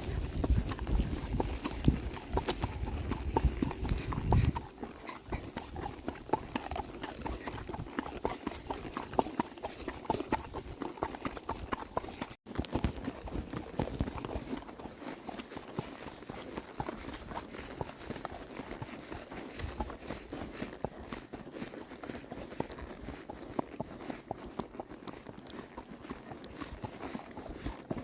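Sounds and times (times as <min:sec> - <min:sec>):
horse hooves clip-clopping: 0:00.0 - 0:28.0.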